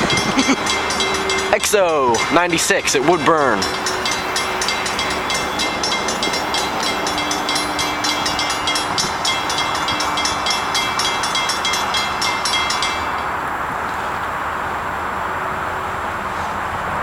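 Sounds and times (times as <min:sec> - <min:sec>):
rapid metallic ringing: 0:00.0 - 0:13.5
diesel locomotives running by: 0:00.0 - 0:17.0.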